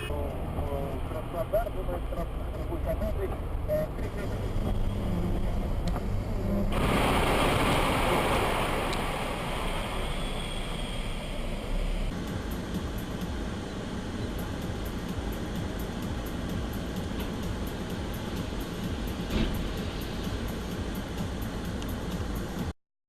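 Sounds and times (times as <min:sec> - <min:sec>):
car road noise rumble: 0:00.0 - 0:22.7
loud rushing hiss: 0:06.7 - 0:22.5.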